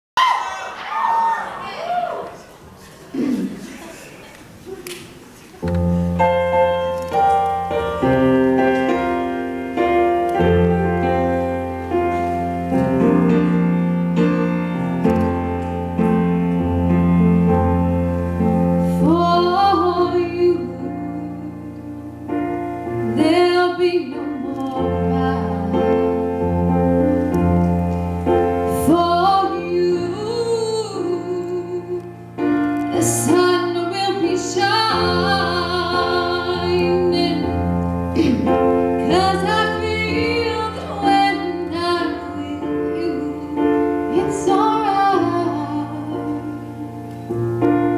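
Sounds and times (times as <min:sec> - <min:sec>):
solo piano chords: 0:05.6 - 0:47.9
woman singing: 0:18.9 - 0:22.2, 0:23.0 - 0:26.4, 0:28.7 - 0:32.2, 0:32.9 - 0:47.0.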